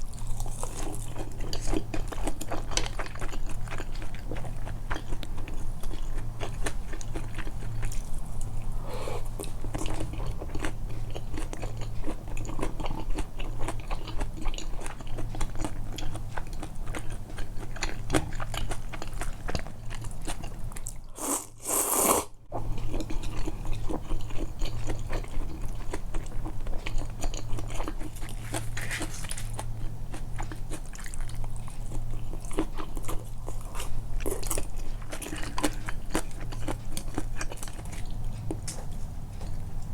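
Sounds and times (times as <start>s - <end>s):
low steady hum: 0.0s - 21.2s
chewing and biting food: 0.0s - 39.9s.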